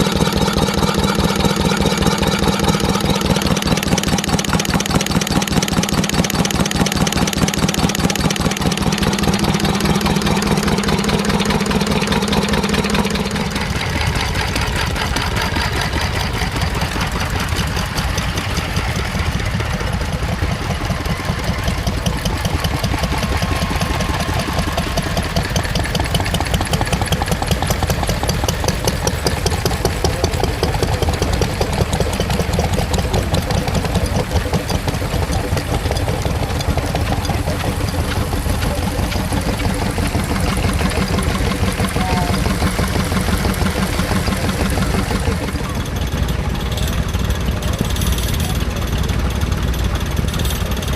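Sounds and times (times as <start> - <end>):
engines running with even beat: 0.0 - 50.9
steady low drone: 0.0 - 50.9.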